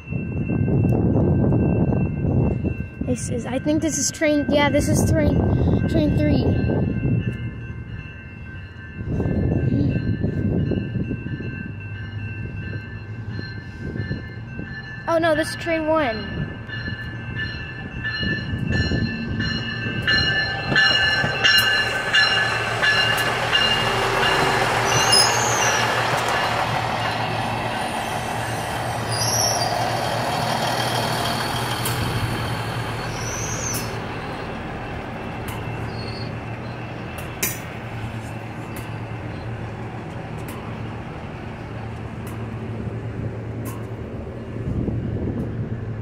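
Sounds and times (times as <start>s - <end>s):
train wheel and rail noise: 0.0s - 46.0s
wheel or brake squeals: 24.8s - 25.9s, 29.1s - 29.8s, 33.0s - 34.4s, 35.8s - 36.8s.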